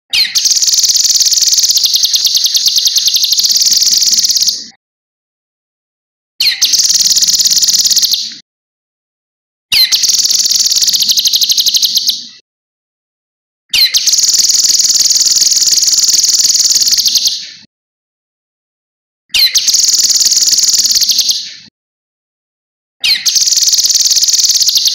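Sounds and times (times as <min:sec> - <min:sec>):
songbird singing high trills: 0:00.2 - 0:04.7, 0:06.4 - 0:08.3, 0:09.7 - 0:12.3, 0:13.7 - 0:17.6, 0:19.3 - 0:21.6, 0:23.0 - 0:24.9.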